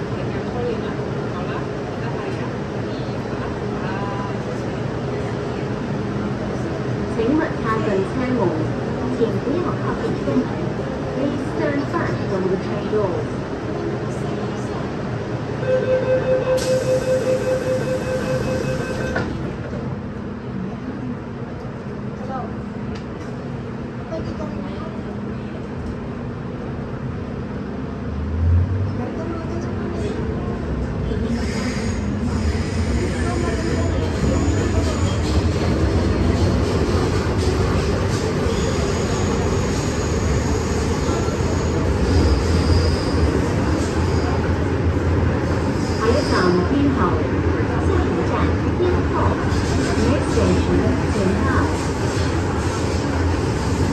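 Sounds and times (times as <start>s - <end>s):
train rumble: 0.0s - 53.9s
pulsing electronic warning tone: 15.6s - 19.2s.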